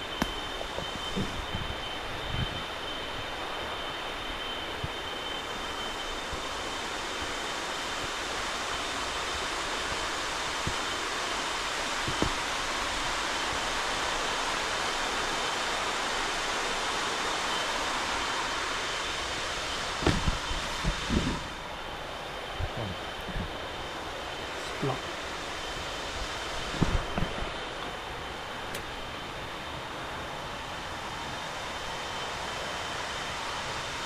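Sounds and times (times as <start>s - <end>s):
falling water rushing: 0.0s - 22.5s.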